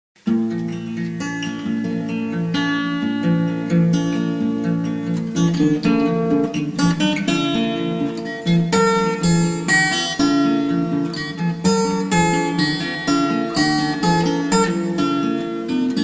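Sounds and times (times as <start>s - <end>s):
acoustic guitar music: 0.2s - 16.0s.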